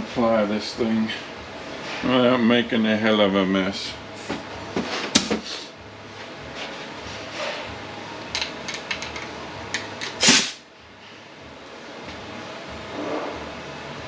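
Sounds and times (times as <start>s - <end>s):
compressed air blast: 10.2s - 10.6s.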